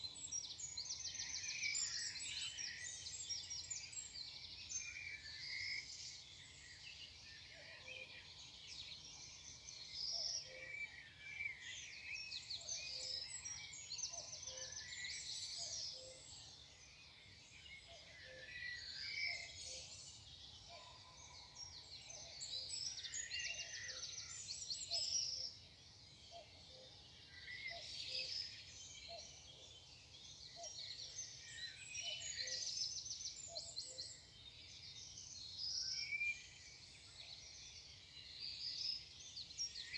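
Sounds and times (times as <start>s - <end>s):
birds singing: 0.1s - 39.9s.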